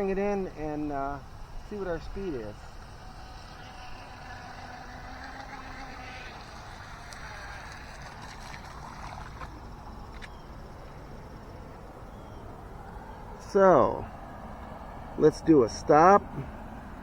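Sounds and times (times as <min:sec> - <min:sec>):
faint electric motor whine: 0:00.0 - 0:15.2.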